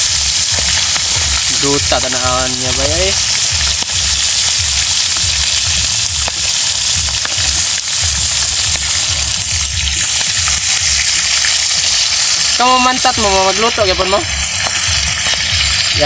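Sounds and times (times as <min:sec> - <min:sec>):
fish sizzling in hot oil: 0:00.0 - 0:16.0.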